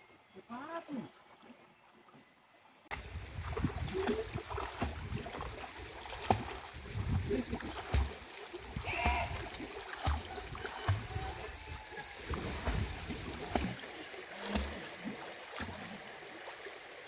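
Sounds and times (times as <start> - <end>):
water sloshing and splashing: 2.9 - 17.0.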